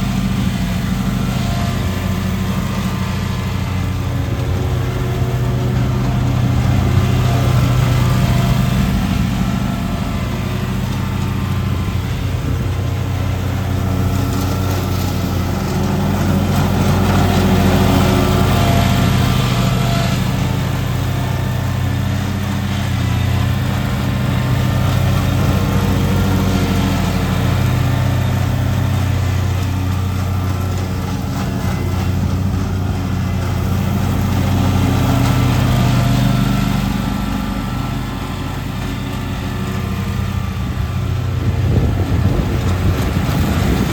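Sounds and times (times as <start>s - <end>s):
lawn mower engine running: 0.0s - 43.9s.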